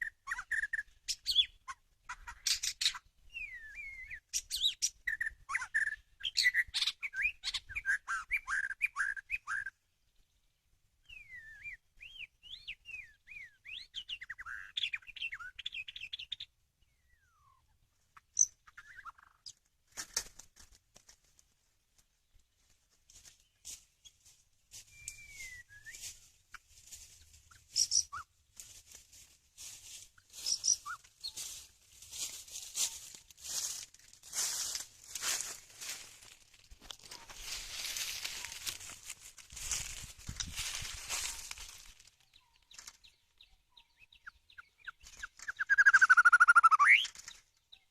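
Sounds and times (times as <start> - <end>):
bird chirping and trilling: 0.0 - 9.8, 11.1 - 19.6, 24.9 - 28.4, 30.2 - 31.6, 40.6 - 47.9
rustling: 19.9 - 27.8, 28.5 - 43.0
bird whistling: 24.9 - 26.1, 45.5 - 47.1.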